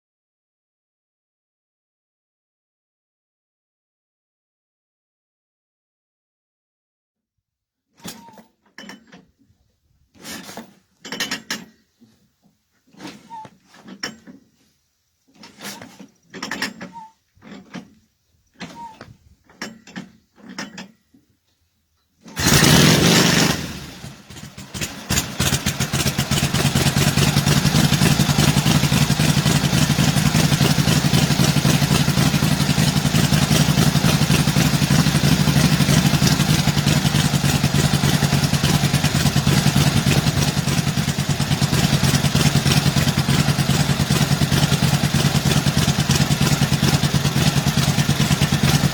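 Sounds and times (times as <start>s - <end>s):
motorcycle being kick-started: 8.0s - 9.4s, 10.2s - 12.0s, 12.9s - 14.6s, 15.3s - 21.1s, 22.2s - 48.9s
motorcycle engine running: 22.4s - 48.9s.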